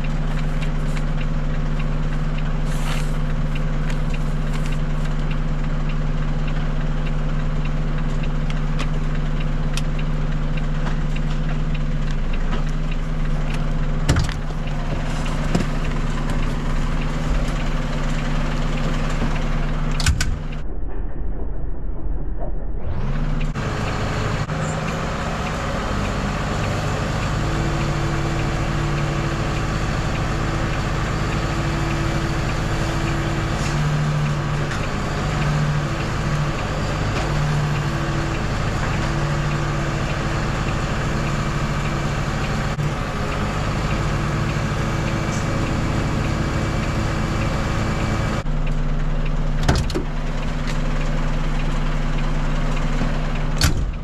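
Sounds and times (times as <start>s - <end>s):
diesel lorry engine running: 0.0s - 54.0s
mechanical noise: 15.7s - 24.7s.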